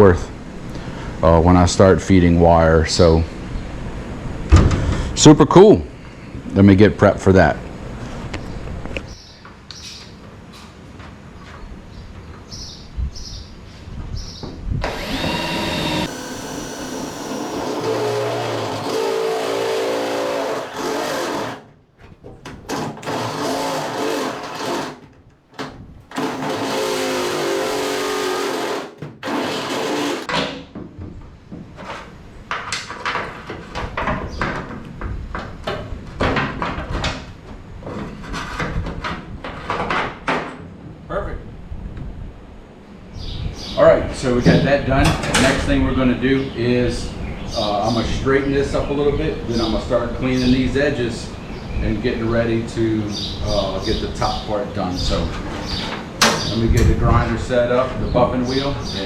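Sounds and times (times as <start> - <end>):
electric drill boring through metal: 14.8 - 21.7, 22.5 - 30.3
knocks and rattles: 14.9 - 31.2.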